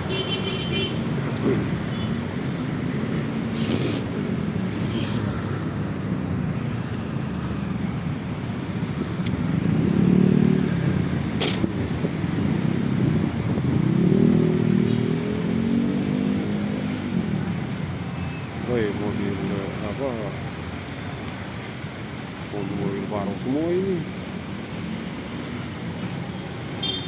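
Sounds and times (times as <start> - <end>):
road traffic: 0.0 - 27.0
vehicle engine passing close: 2.8 - 17.8.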